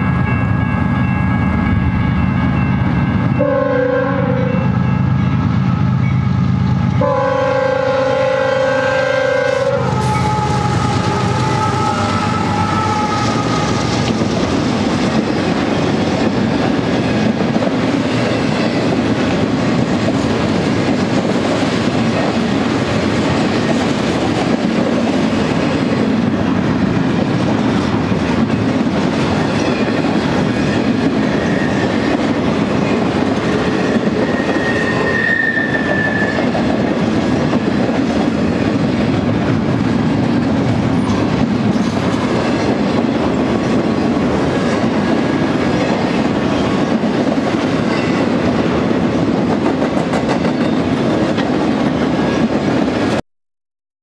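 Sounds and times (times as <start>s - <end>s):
train wheels rumbling on rails: 0.0s - 53.2s
train horn: 3.2s - 14.0s, 33.8s - 36.6s.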